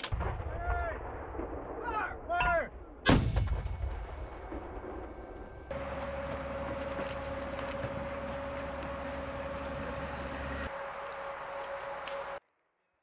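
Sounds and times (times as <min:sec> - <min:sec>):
diesel engine running: 0:05.7 - 0:12.4.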